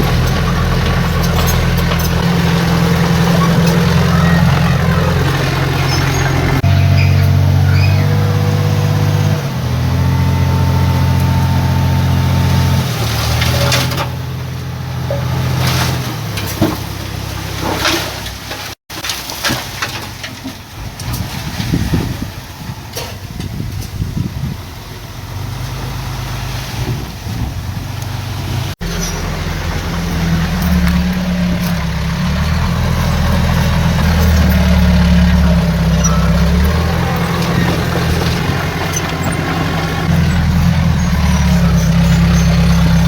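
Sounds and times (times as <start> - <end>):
metal clanks and knocks: 0.0 - 7.4, 33.5 - 43.0
heavy diesel engine running: 0.0 - 18.8, 20.8 - 43.0.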